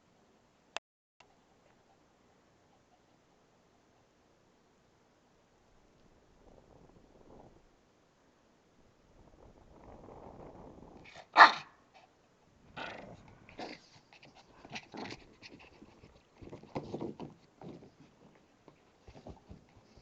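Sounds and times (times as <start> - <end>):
dog loud sharp sound: 11.1 - 11.8
dog making low rough sound: 12.7 - 15.4.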